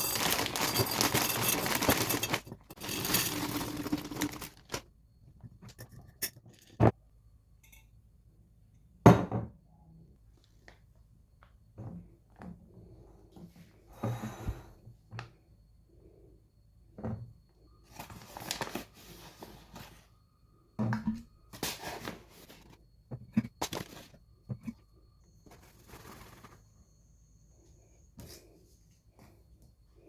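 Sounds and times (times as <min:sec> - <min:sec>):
plastic packaging rustling: 0:00.0 - 0:04.9, 0:18.0 - 0:19.2.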